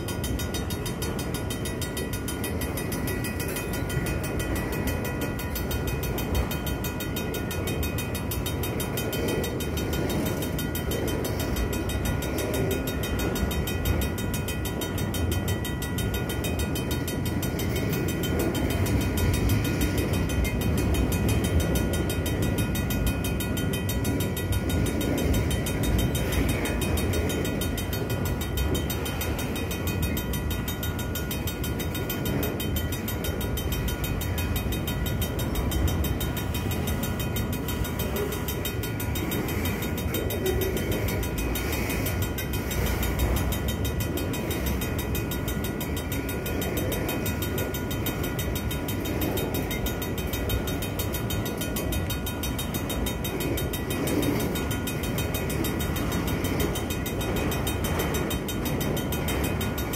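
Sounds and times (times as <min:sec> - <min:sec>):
crossing bell ringing fast: 0:00.0 - 0:59.9.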